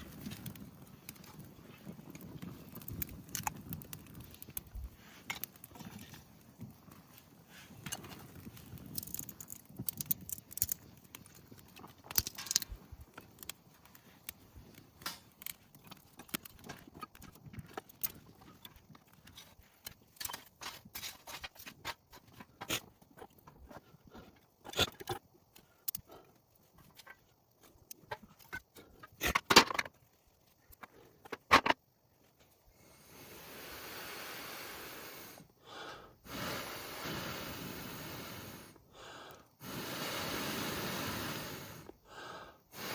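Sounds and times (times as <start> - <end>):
person blowing on tinder: 32.9 - 41.9.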